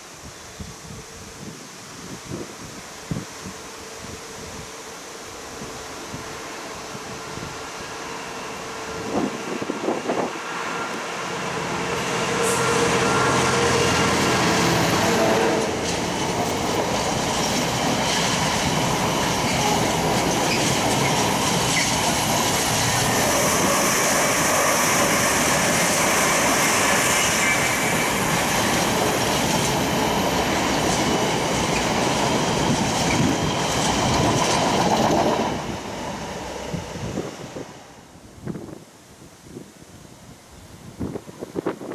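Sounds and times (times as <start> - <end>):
wheels rushing on rails: 2.3 - 38.7
train passing: 2.7 - 38.7.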